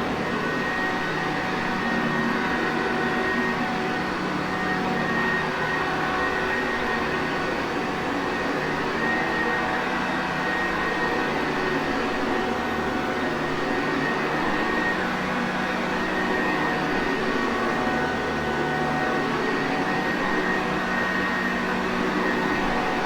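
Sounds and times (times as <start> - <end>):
upright vacuum cleaner running: 14.8 - 23.0.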